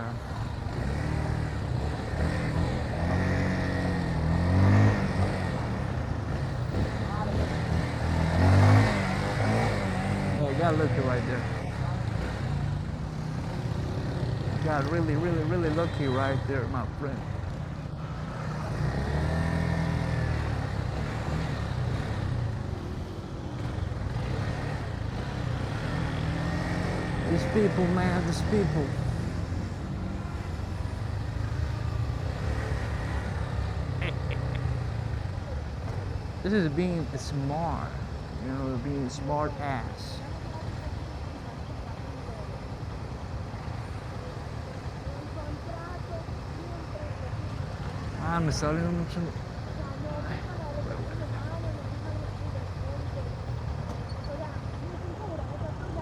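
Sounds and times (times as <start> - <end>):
wind and road noise: 0.0 - 56.0
motorcycle engine accelerating: 0.2 - 38.8.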